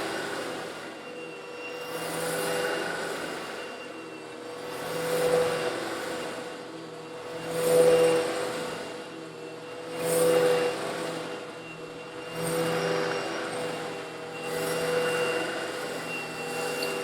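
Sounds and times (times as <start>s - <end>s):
vacuum cleaner motor hum: 0.0s - 17.0s.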